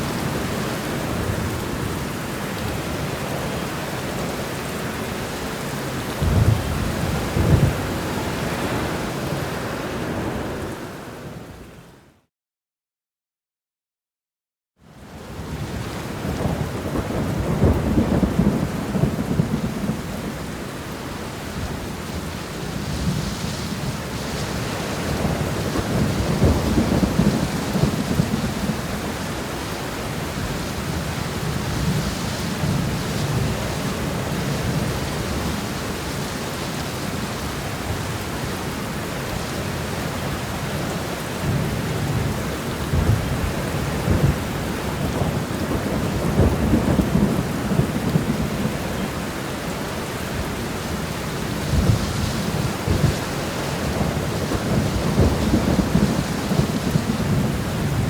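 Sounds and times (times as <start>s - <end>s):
rain falling: 0.0s - 11.5s, 14.9s - 58.0s
thunder rumbling: 6.1s - 10.7s, 21.6s - 36.0s, 40.0s - 49.4s, 50.3s - 58.0s.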